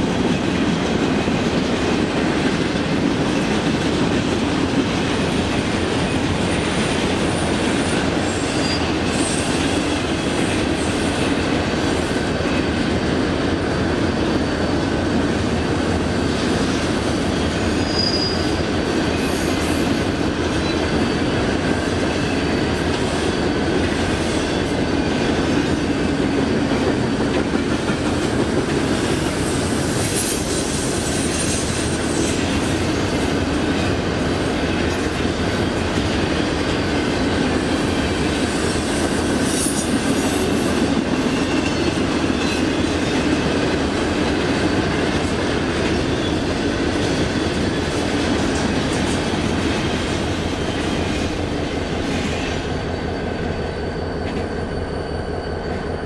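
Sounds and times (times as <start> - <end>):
train rolling past: 0.0 - 56.0
faint high wheel squeal: 7.2 - 11.2, 17.4 - 21.4, 50.6 - 56.0.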